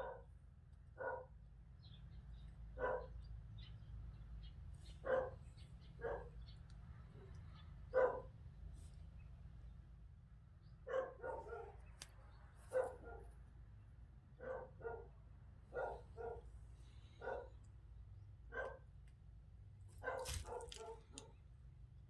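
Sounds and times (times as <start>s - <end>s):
dog barking: 0.0s - 0.3s, 1.0s - 1.3s, 2.8s - 3.2s, 5.0s - 5.4s, 6.0s - 6.4s, 7.9s - 8.4s, 10.8s - 11.9s, 12.7s - 13.4s, 14.4s - 16.5s, 17.2s - 17.6s, 18.5s - 18.9s, 20.0s - 21.3s.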